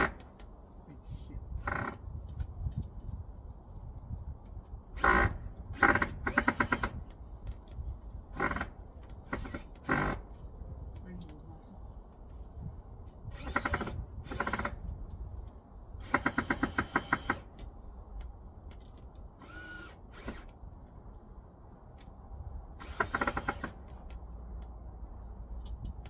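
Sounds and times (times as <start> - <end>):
power drill driving screws: 5.0 - 7.0, 8.4 - 8.7, 9.3 - 10.2, 13.3 - 14.8, 16.0 - 17.6, 19.4 - 20.6, 22.8 - 24.1.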